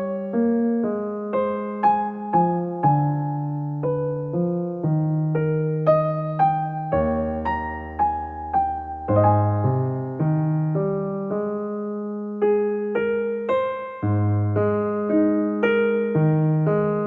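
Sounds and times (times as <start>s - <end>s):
gentle electric piano melody: 0.0s - 17.0s.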